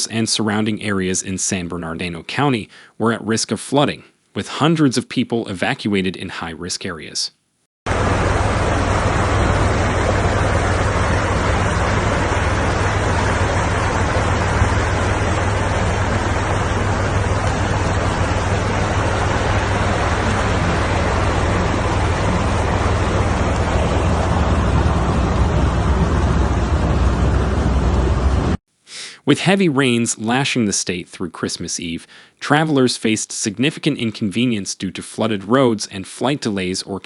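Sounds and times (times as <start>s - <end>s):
deep water rumble: 7.9s - 28.6s
floodwater rushing: 7.9s - 28.6s.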